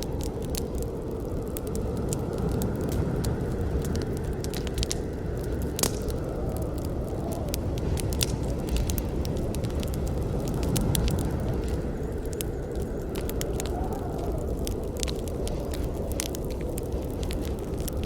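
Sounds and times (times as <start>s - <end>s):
campfire wood crackling and popping: 0.0s - 18.0s
low rumble of flames: 0.0s - 18.0s.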